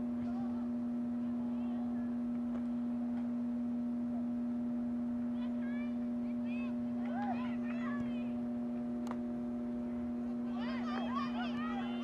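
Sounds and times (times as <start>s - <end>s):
loud low steady hum: 0.0s - 12.0s
distant shouts: 5.3s - 8.5s, 9.8s - 12.0s.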